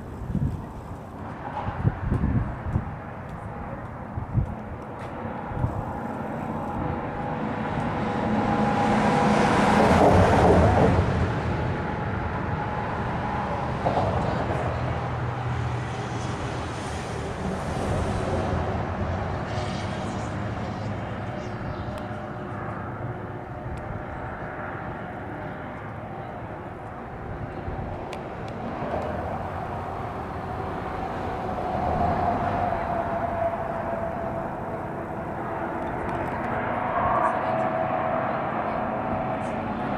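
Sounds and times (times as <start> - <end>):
engine rumble: 10.0 - 39.9
vehicle passing by: 27.5 - 39.9.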